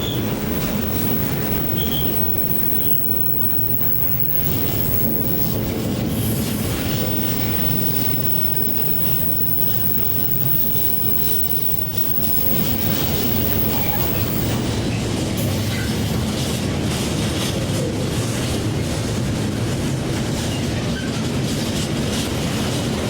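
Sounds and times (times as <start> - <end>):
train rumbling past on rails: 0.0 - 23.0.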